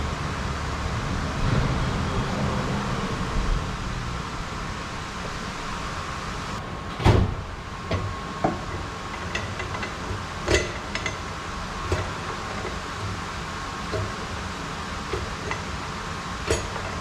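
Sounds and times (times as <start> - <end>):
fan-like hum: 0.0 - 17.0
sharp knocks and clanks: 6.9 - 17.0.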